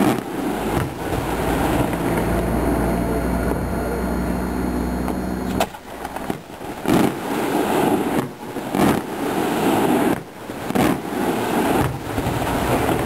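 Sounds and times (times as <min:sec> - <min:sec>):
distant firework booms: 0:00.0 - 0:02.4, 0:05.5 - 0:13.0
steady hum: 0:00.0 - 0:08.2.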